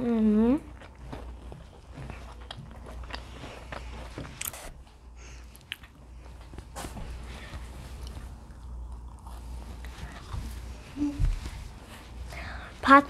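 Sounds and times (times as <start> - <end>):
low steady hum: 0.0 - 13.0
crunchy cookie chewing: 0.6 - 10.9.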